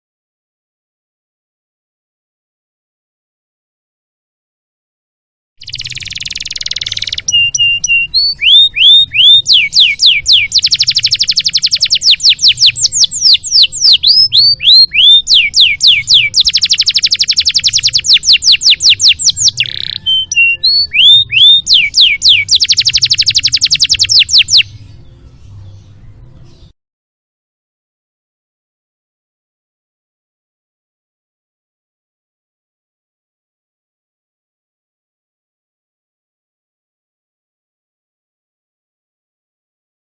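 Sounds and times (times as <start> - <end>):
canary singing: 5.6 - 26.8.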